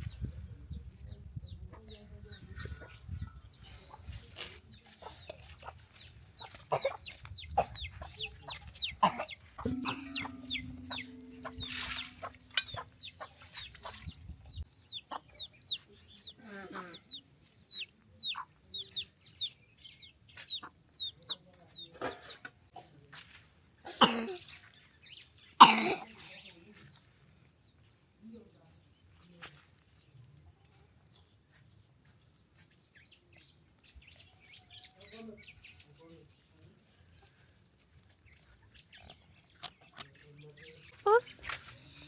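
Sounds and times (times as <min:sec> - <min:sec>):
chickens peeping and clucking: 0:01.4 - 0:22.6.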